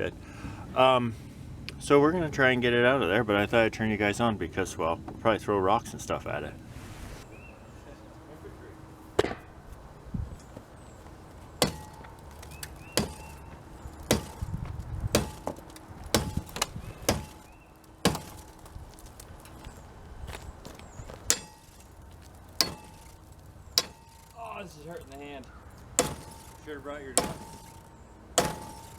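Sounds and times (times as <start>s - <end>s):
ice being chopped: 11.6s - 19.2s, 21.2s - 24.6s, 26.0s - 28.9s.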